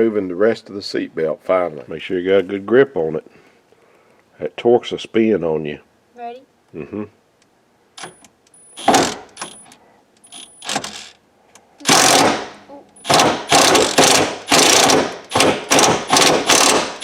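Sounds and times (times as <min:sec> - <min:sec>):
impact wrench bursts: 0:08.7 - 0:11.2, 0:11.8 - 0:17.0.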